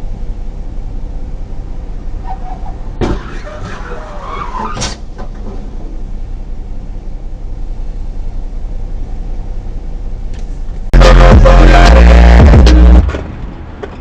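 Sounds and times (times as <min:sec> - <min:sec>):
car engine and tyre noise: 0:00.0 - 0:14.0
loud music: 0:11.0 - 0:13.1.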